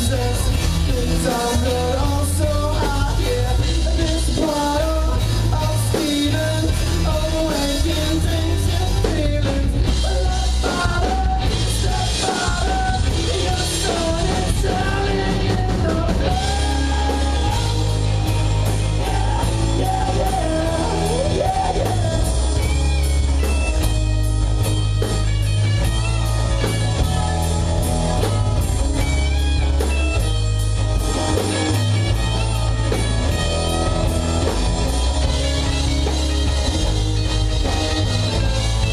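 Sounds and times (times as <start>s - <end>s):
person singing: 0.0s - 23.9s
rock band playing live: 0.0s - 38.9s.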